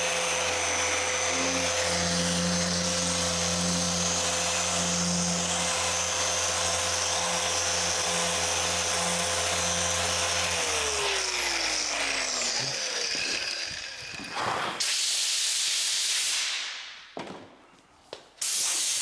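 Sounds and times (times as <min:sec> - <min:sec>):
car polisher motor running: 0:00.0 - 0:14.8.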